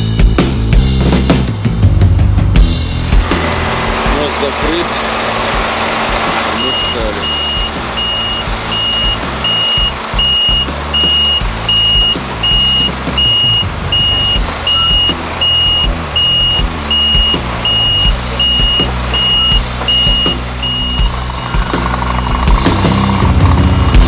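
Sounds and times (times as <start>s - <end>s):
reversing alarm beeping: 6.5s - 21.8s.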